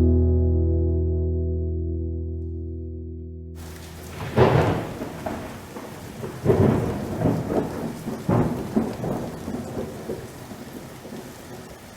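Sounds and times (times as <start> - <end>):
low thunder rumbles: 3.6 - 11.9
rain falling: 3.6 - 11.9.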